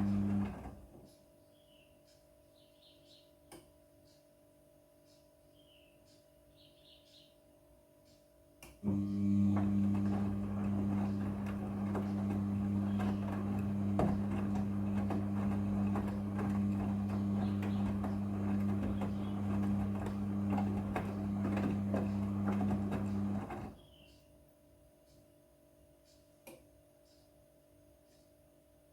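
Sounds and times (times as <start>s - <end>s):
washing machine humming: 0.0s - 1.0s, 8.8s - 23.9s.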